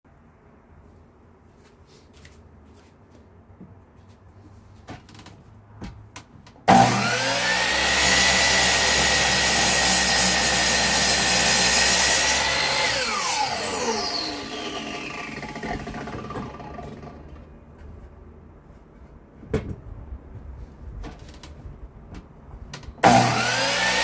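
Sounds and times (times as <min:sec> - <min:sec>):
power tool motor spinning: 0:06.7 - 0:17.3, 0:23.0 - 0:24.0.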